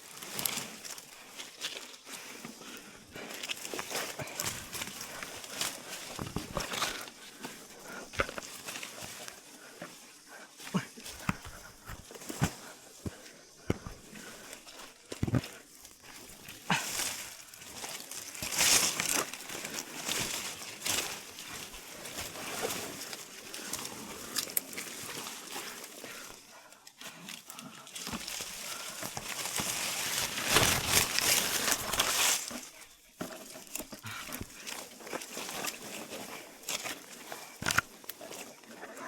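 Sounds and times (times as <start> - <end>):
leaves and branches rustling: 0.0 - 39.0.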